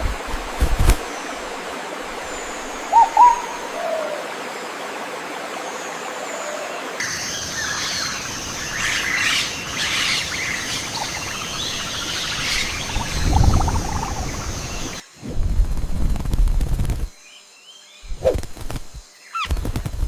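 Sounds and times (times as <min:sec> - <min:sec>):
wild birds chirping: 0:01.0 - 0:15.1, 0:19.0 - 0:19.7
high-pitched forest background: 0:02.2 - 0:04.3, 0:07.0 - 0:15.4.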